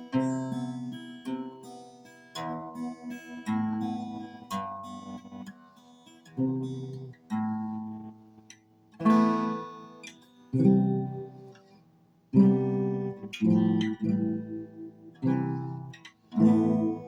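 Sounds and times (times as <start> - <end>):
acoustic guitar chords strummed: 12.3 - 17.0.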